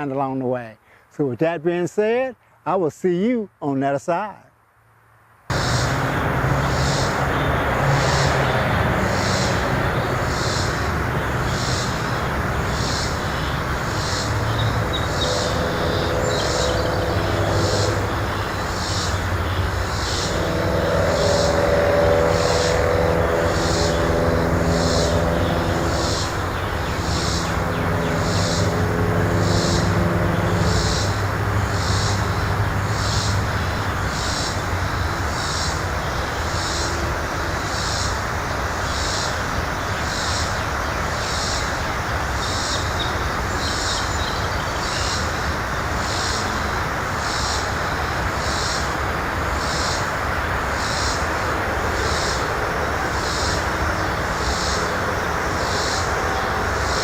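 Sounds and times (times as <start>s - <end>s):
distant engine rumble: 5.5s - 57.0s
humming engine tone: 5.5s - 57.0s
high-pitched chirp: 11.5s - 31.2s.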